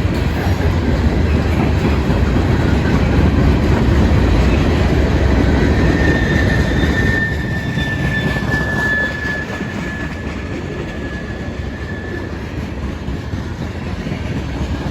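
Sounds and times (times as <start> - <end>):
freight train rumbling past: 0.0 - 14.9
high thin squeal: 5.6 - 12.4.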